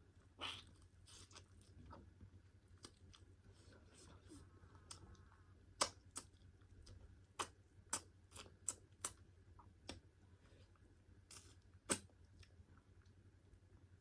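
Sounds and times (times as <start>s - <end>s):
chewing mouth noises: 2.8s - 3.3s
sharp wet clicks and smacks: 5.8s - 9.2s, 9.8s - 10.0s, 11.8s - 12.5s.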